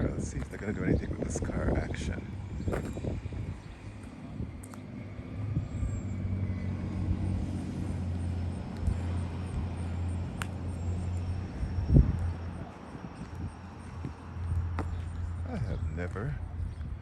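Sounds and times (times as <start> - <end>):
car driving past: 4.5 - 15.6.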